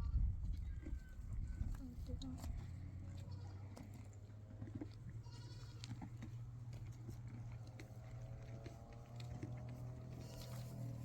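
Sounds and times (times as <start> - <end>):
livestock bleating: 5.2 - 5.9.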